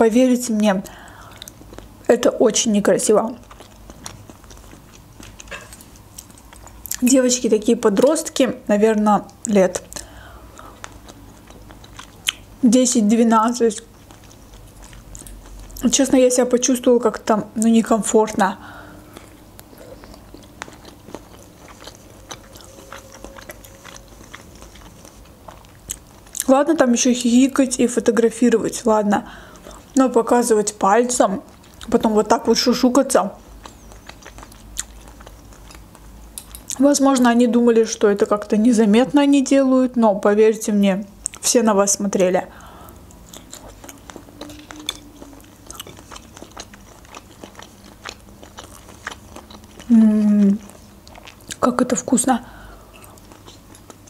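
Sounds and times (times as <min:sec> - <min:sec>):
person chewing food: 0:00.8 - 0:02.1, 0:03.2 - 0:07.0, 0:09.3 - 0:12.6, 0:13.8 - 0:15.9, 0:18.6 - 0:26.5, 0:31.5 - 0:36.8, 0:42.5 - 0:51.6, 0:52.5 - 0:54.0.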